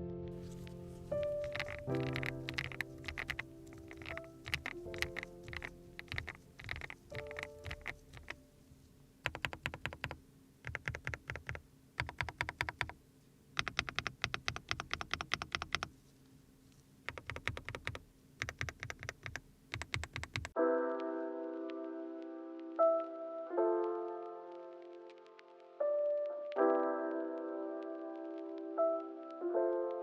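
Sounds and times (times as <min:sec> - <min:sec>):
mechanical keyboard typing: 0:00.4 - 0:08.4, 0:09.2 - 0:13.0, 0:13.6 - 0:15.9, 0:17.1 - 0:20.6.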